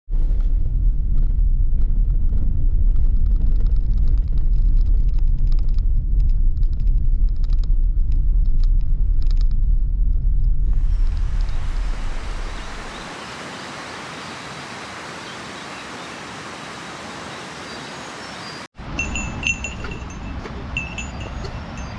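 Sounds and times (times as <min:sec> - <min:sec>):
steady low rumble: 0:00.2 - 0:13.2.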